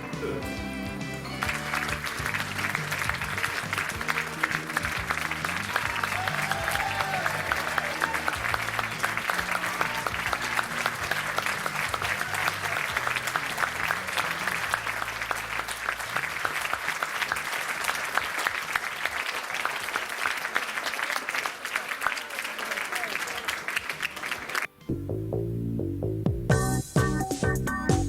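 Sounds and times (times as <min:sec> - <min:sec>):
low background music: 0:00.0 - 0:18.3, 0:24.7 - 0:28.0
audience applauding: 0:01.1 - 0:24.8.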